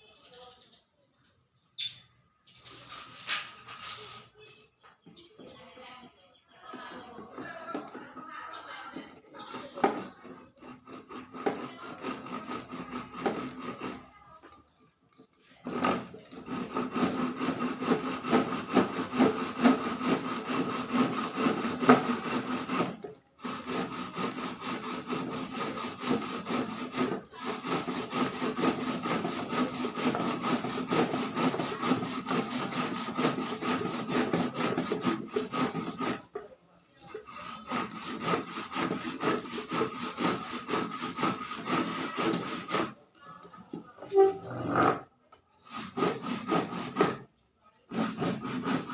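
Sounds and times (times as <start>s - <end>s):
sawing: 2.6s - 4.5s, 7.0s - 14.5s, 15.5s - 48.9s.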